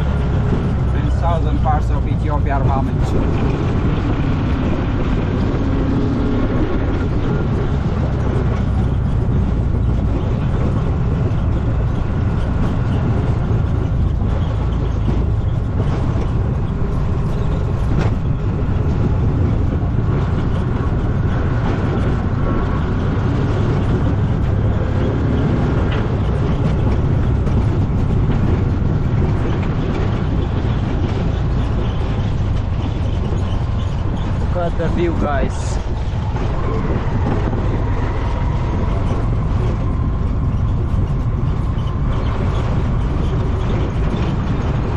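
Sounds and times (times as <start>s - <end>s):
faint rattles: 0.0s - 44.9s
vehicle rumbling on dirt road: 0.0s - 44.9s.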